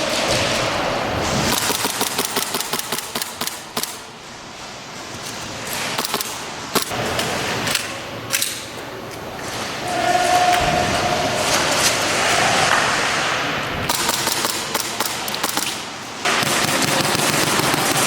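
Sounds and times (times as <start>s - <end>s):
airsoft gun firing: 1.5s - 4.1s, 6.0s - 6.9s, 13.9s - 18.0s.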